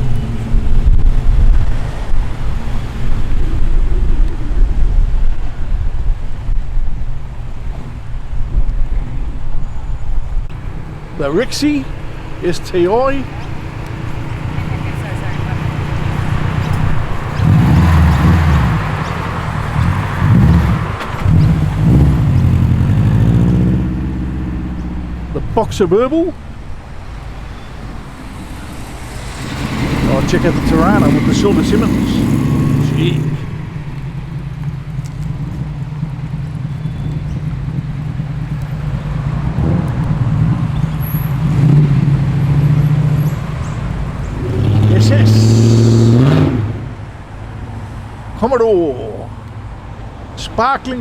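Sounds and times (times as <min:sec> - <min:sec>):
car engine revving: 0:10.5 - 0:48.3.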